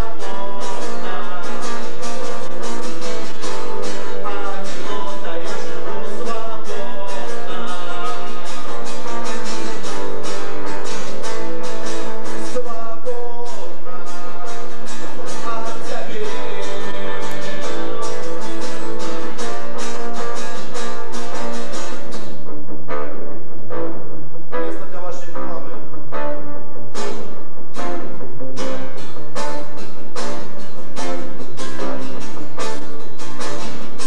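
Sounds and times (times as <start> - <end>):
person singing: 0.0 - 2.6, 3.8 - 9.9, 12.3 - 19.8
acoustic guitar strumming: 0.0 - 34.0.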